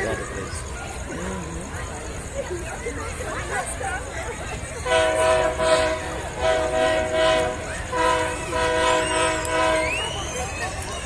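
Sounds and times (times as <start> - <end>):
locomotive air horn blasts: 4.8 - 10.2.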